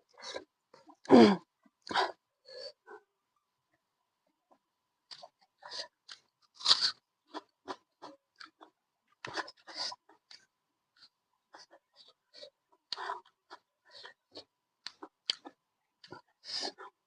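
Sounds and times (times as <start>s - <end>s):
person chewing crunchy food: 5.1s - 16.8s.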